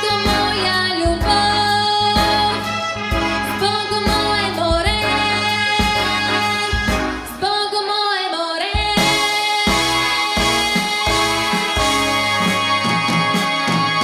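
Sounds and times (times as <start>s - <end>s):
girl singing: 0.0s - 2.7s, 3.6s - 6.2s, 7.3s - 11.7s
pop backing track with drums: 0.0s - 8.0s, 8.6s - 14.0s.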